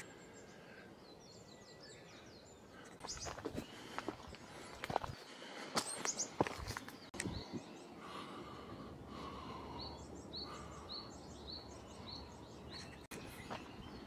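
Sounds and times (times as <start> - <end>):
outdoor background hiss: 7.6 - 14.0.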